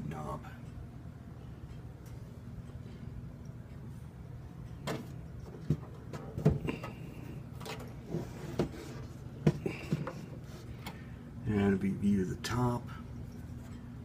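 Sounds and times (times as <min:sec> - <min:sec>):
steady low hum: 0:00.0 - 0:14.0
fan being handled knocks: 0:04.8 - 0:07.0, 0:08.5 - 0:11.0.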